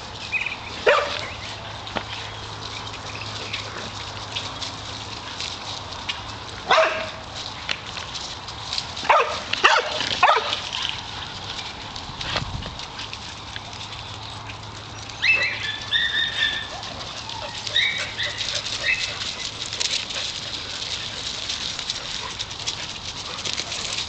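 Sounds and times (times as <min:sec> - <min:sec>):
dogs barking: 0:00.8 - 0:01.4, 0:06.6 - 0:07.2, 0:09.0 - 0:11.0, 0:15.2 - 0:22.5
dog crying high-pitched: 0:15.2 - 0:19.1.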